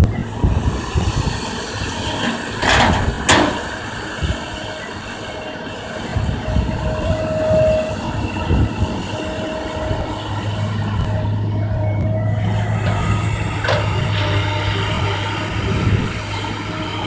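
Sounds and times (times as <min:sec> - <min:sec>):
excavator engine and hydraulics: 0:00.0 - 0:17.0.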